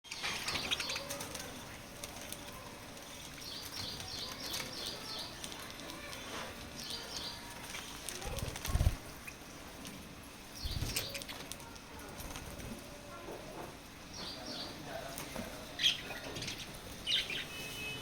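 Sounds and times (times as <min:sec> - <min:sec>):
parrots chirping: 0:00.1 - 0:01.7, 0:15.8 - 0:17.9.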